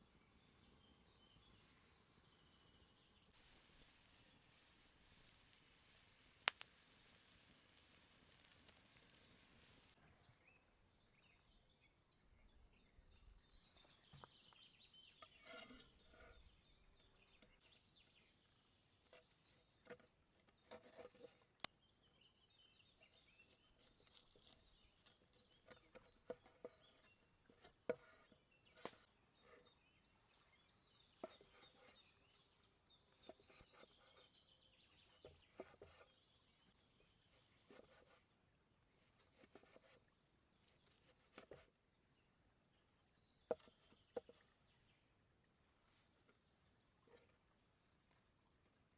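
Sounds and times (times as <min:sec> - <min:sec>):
frying sizzle: 0:03.4 - 0:10.0.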